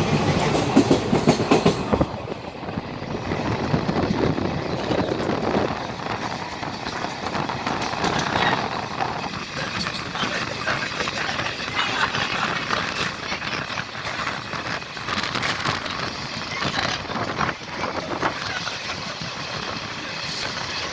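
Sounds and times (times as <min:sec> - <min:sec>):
train wheels clattering on rails: 0:00.0 - 0:20.9.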